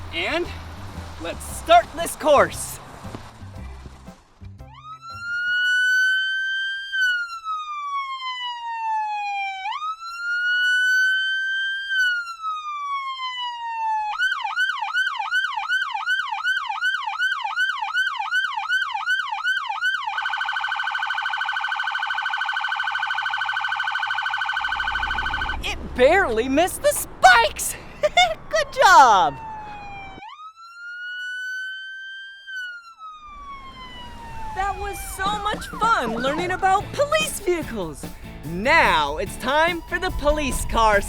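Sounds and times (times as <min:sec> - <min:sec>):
police siren wailing and yelping: 0:04.8 - 0:37.6.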